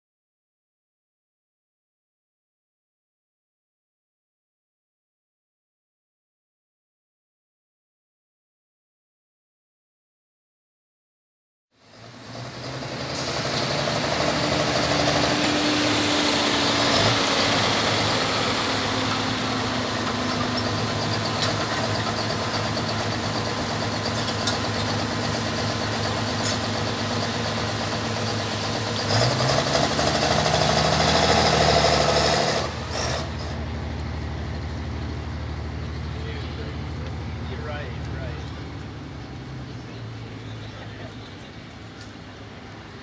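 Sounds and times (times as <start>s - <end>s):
diesel tractor engine under load: 11.8s - 43.0s.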